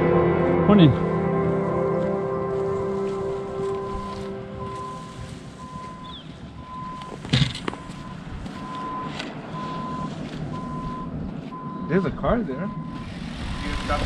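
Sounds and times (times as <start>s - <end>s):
vehicle backup alarm beeping: 3.6s - 14.0s.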